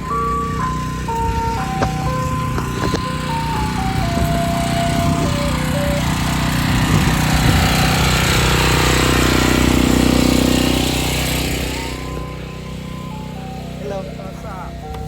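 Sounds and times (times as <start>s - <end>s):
ice cream truck chime tune: 0.0s - 15.0s
truck engine running: 0.0s - 15.0s.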